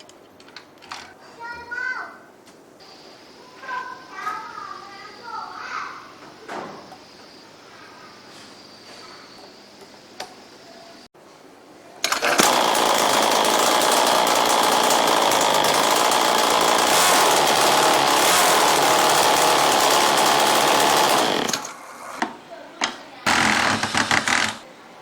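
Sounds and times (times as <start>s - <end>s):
power tool running: 12.0s - 22.2s, 23.3s - 24.6s.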